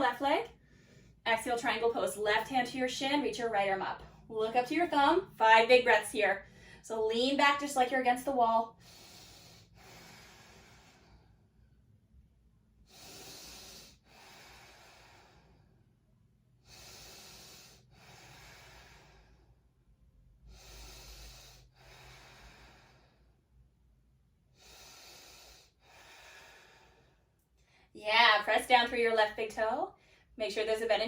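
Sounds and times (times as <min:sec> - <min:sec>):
woman breathing deeply: 0:00.6 - 0:01.2, 0:06.4 - 0:06.8, 0:08.8 - 0:12.0, 0:12.8 - 0:23.6, 0:24.5 - 0:27.9.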